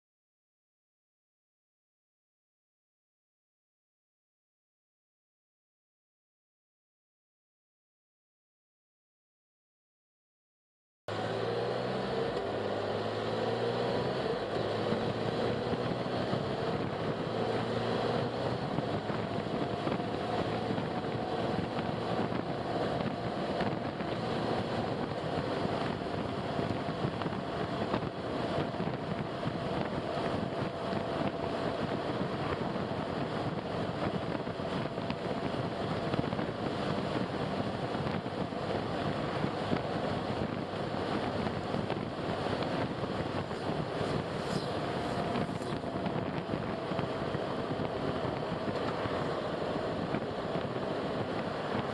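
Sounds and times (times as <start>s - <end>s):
car engine: 11.1s - 51.9s
tyre noise on road: 11.1s - 51.9s.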